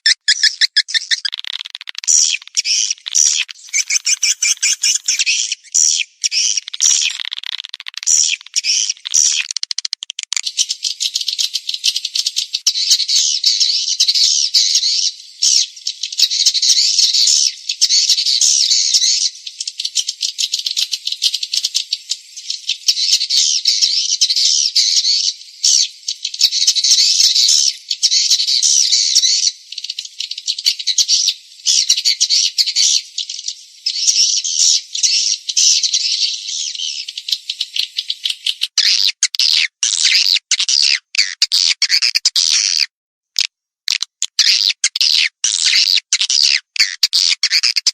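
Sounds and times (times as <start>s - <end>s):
swiftlets twittering: 0.0s - 1.5s, 2.1s - 5.7s.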